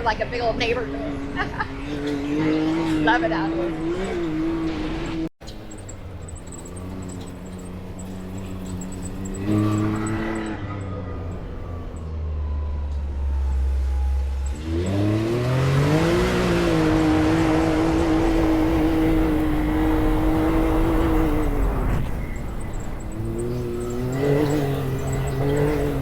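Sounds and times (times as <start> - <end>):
vehicle engine revving: 0.0 - 26.0.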